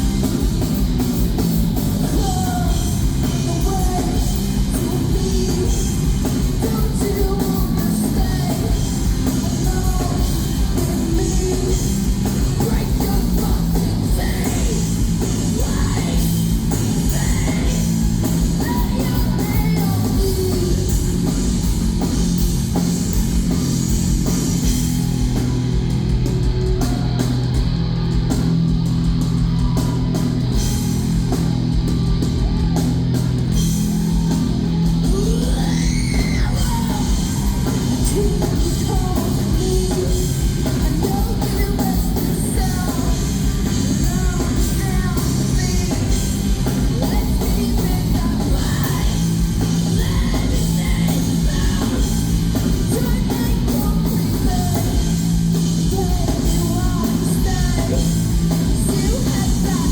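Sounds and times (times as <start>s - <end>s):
live heavy rock band: 0.0s - 59.9s
person singing and yelling: 2.0s - 21.7s, 32.1s - 59.9s.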